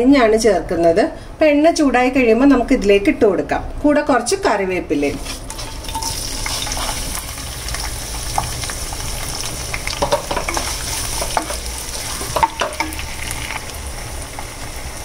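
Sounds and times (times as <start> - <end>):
shallots sizzling in hot oil: 5.1 - 15.0.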